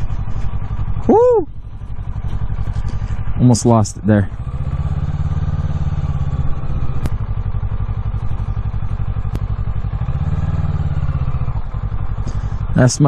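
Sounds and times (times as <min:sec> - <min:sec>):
motorcycle engine at low revs: 0:00.0 - 0:13.0
sharp clicks: 0:06.9 - 0:07.3, 0:09.2 - 0:09.6.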